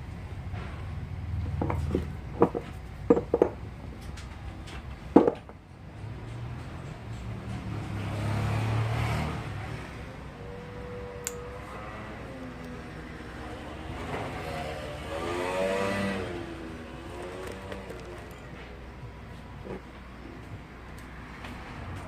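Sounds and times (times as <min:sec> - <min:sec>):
sharp metallic clinks and taps: 0:11.2 - 0:11.4.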